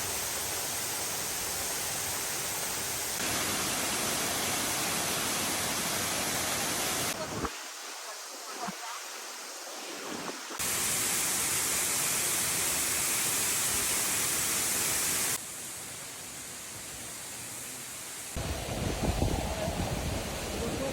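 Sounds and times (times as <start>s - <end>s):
waterfall rushing: 1.0s - 15.4s.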